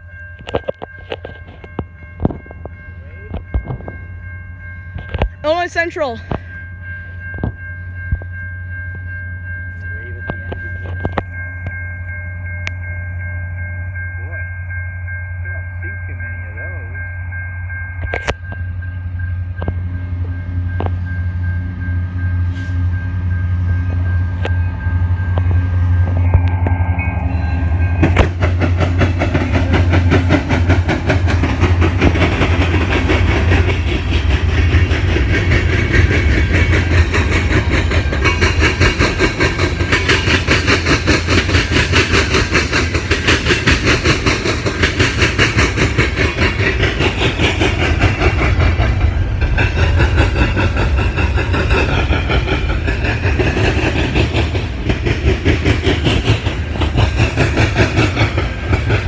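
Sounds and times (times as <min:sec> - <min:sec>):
low rumble of freight train: 0:00.0 - 0:59.0
train wheels clicking over rail joints: 0:00.3 - 0:04.0, 0:27.6 - 0:59.0.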